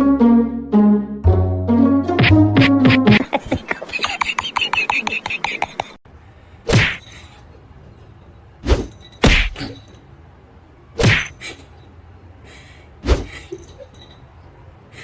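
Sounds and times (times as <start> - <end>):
loud thumps: 2.1 - 3.3.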